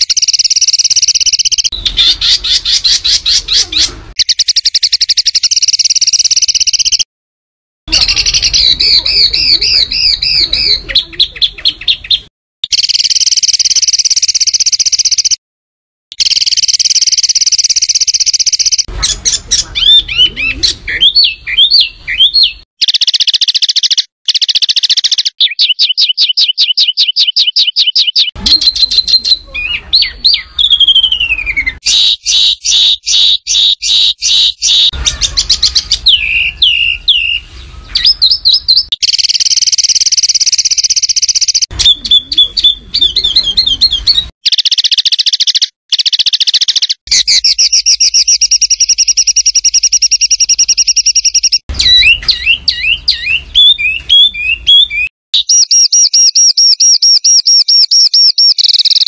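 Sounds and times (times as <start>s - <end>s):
songbird trills and chatter: 0.0s - 7.1s, 7.9s - 15.4s, 16.2s - 59.0s.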